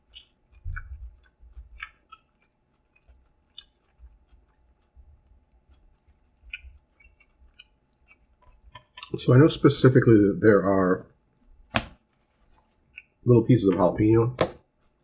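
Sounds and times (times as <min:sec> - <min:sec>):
mouth clicks and smacks: 0:00.0 - 0:09.2, 0:11.7 - 0:13.2
person chewing food: 0:00.0 - 0:09.4, 0:11.3 - 0:13.2, 0:14.6 - 0:15.0.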